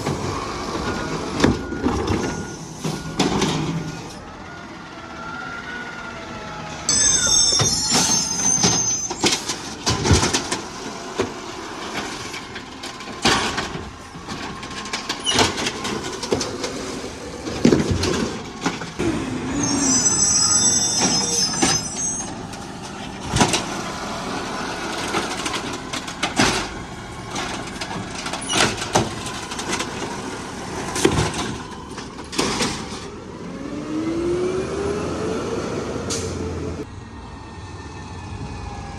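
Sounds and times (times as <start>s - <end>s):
garbage truck engine running: 0.0s - 38.9s
carts banging against hopper: 6.9s - 19.5s, 20.8s - 33.2s.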